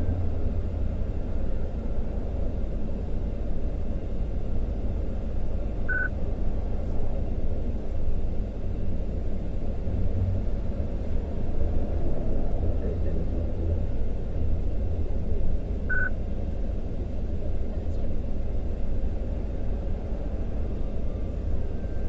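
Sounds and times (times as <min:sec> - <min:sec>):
short electronic beep: 0:05.9 - 0:06.1, 0:15.9 - 0:16.1.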